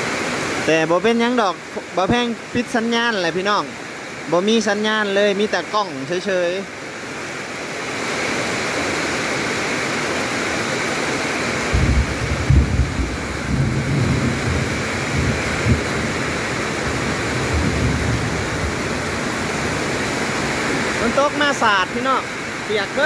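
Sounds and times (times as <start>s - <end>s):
heavy rain pouring: 0.0s - 23.0s
low uneven rumble: 11.7s - 20.0s.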